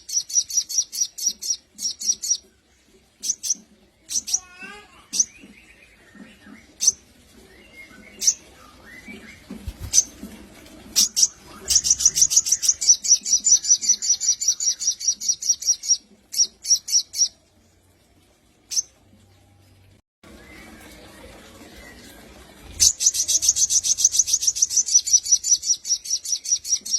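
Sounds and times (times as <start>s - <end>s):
bird chips: 9.4s - 10.2s.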